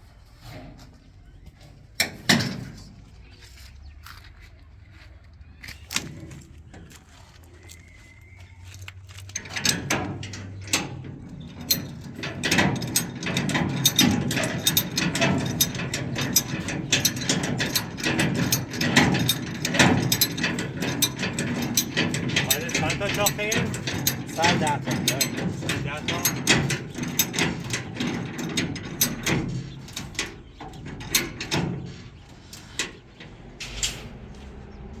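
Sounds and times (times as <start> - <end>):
rapid clattering of hard knocks: 9.3 - 34.2.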